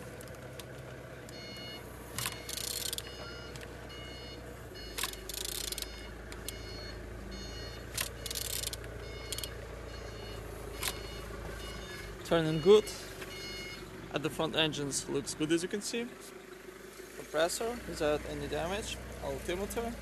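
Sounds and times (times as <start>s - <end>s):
engine turned over by hand: 0.0s - 4.0s, 4.8s - 12.4s.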